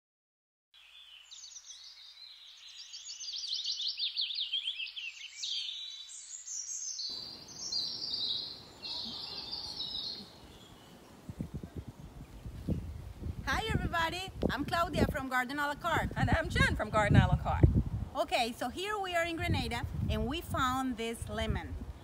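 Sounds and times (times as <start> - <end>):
birds chirping: 0.8 - 14.1
low rumbling noise: 16.0 - 18.2.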